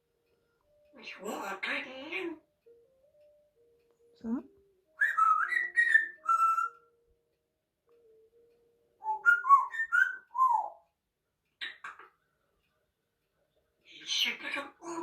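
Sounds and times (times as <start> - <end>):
parrot whistling: 5.0 - 6.9, 9.0 - 10.8.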